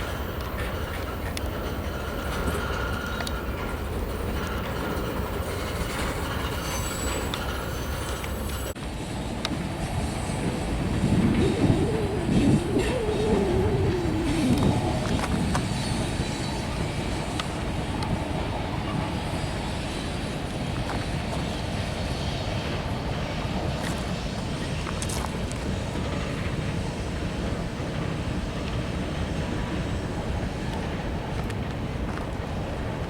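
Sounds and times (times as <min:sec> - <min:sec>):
clicks of train wheels: 0:00.0 - 0:11.6, 0:14.0 - 0:33.0
train wheels rumbling on rail: 0:00.0 - 0:33.0
pitched tone rising and falling: 0:11.1 - 0:15.7.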